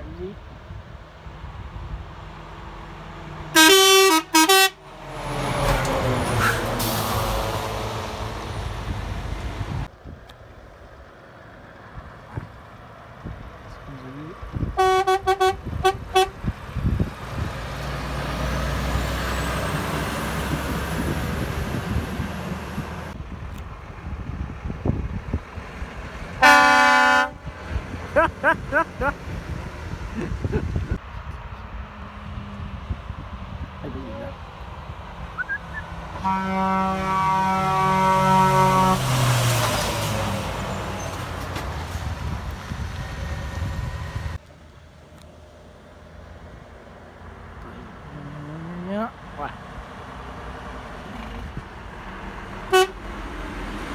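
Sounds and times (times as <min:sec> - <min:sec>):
truck rumbling past: 0:00.0 - 0:53.9
truck air horn blasts: 0:03.5 - 0:04.8, 0:14.8 - 0:16.4, 0:26.4 - 0:27.5, 0:35.4 - 0:39.3, 0:52.7 - 0:53.0
tyre and wind noise: 0:14.4 - 0:26.4, 0:27.3 - 0:36.1, 0:39.1 - 0:44.4.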